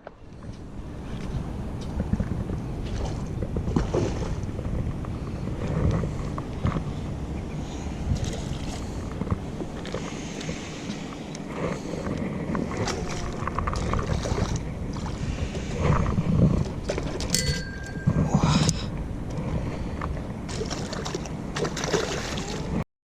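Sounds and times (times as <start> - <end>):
wind rumbling on microphone: 0.0 - 22.8.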